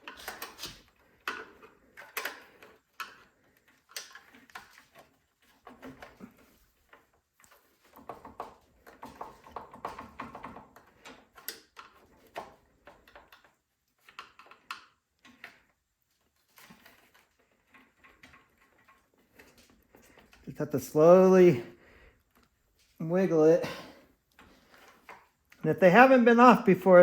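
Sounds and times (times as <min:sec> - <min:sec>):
hands clicking plastic knob: 0:00.0 - 0:06.2.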